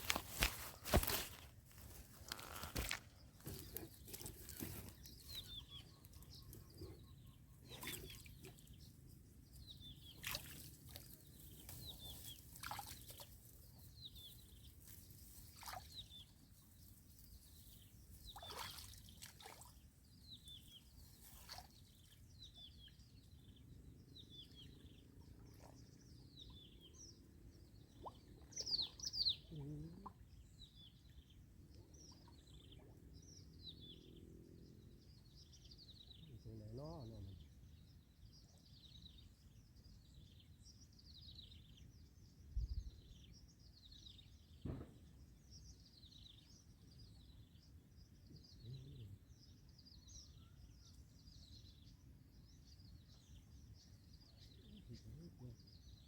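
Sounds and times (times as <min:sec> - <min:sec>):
small birds chirping: 0:00.0 - 0:56.0
water splashing: 0:12.4 - 0:13.3.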